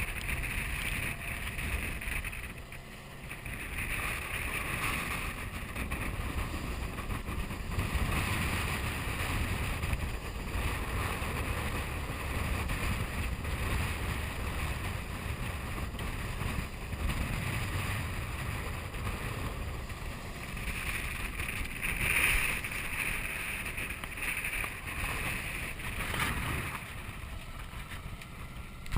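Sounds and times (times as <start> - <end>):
water rushing around boat: 0.0 - 28.9
wind buffeting microphone: 0.0 - 28.9.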